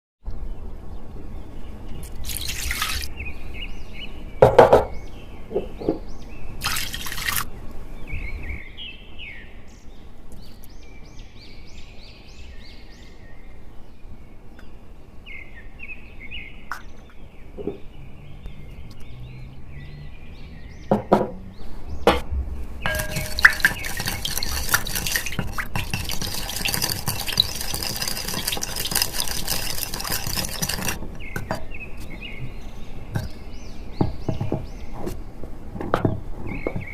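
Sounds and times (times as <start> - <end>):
liquid pouring into bowl: 2.1 - 3.1, 6.6 - 7.4, 22.9 - 31.6
dishes clinking: 22.9 - 31.8.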